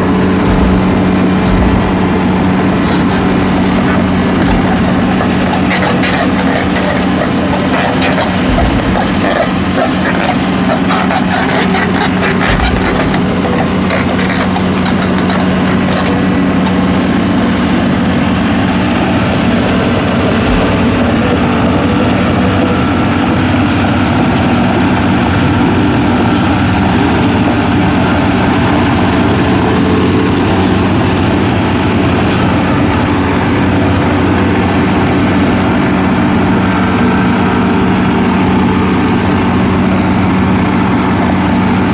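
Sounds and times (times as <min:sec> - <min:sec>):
rattling and clicking: 0:00.0 - 0:16.9, 0:20.1 - 0:22.3
truck engine humming: 0:00.0 - 0:41.9.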